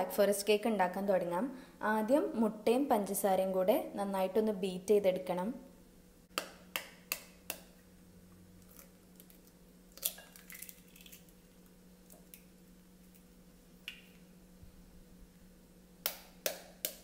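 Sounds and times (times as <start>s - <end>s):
eggshell crackling: 8.6s - 14.2s.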